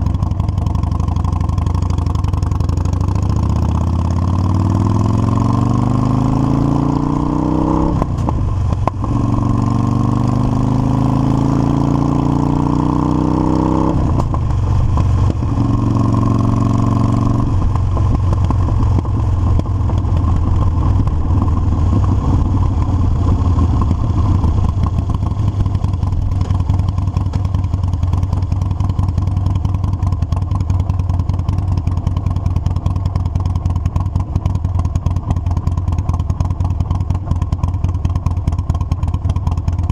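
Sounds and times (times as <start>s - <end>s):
motorcycle accelerating through gears: 0.0s - 39.9s.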